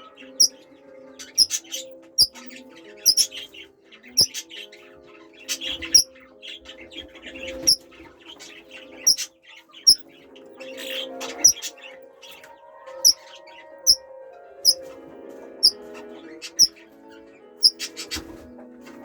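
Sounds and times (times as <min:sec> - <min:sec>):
background music: 0:00.0 - 0:19.0
parrots chirping: 0:01.4 - 0:03.5, 0:07.5 - 0:07.8, 0:08.8 - 0:10.0, 0:11.3 - 0:11.8.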